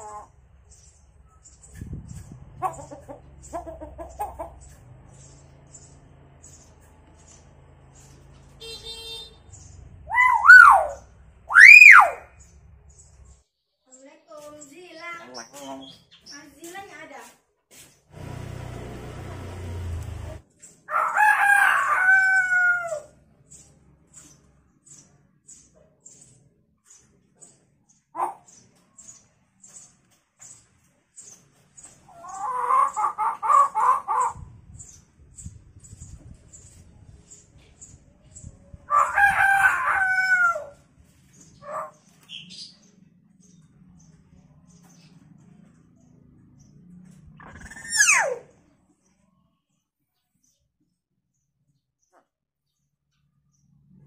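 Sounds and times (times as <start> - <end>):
myna imitating rooster crow: 20.9 - 23.1, 38.9 - 40.8.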